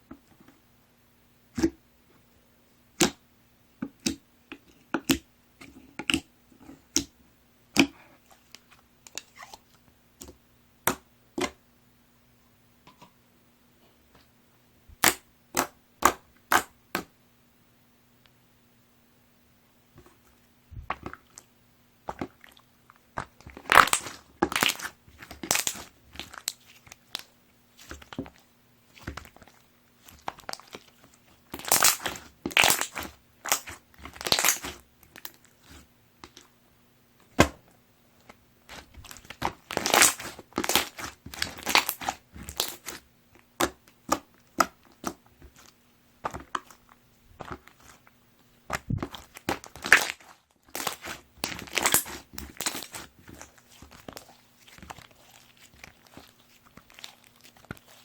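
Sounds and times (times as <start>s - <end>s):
slime crackling and popping: 15.0s - 16.7s, 23.2s - 36.5s, 38.2s - 48.1s, 48.7s - 58.0s.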